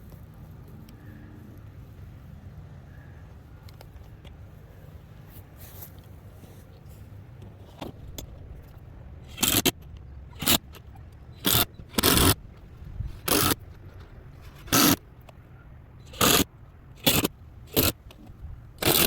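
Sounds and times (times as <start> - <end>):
cordless drill driving screws: 9.3 - 9.7, 10.4 - 10.8, 11.4 - 12.4, 13.2 - 13.6, 14.6 - 15.0, 16.1 - 16.4, 17.0 - 18.0, 18.8 - 19.0.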